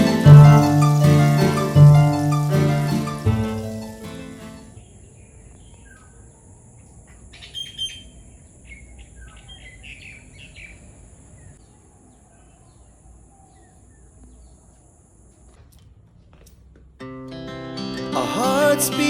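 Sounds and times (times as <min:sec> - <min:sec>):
birds chirping: 0:00.0 - 0:15.2.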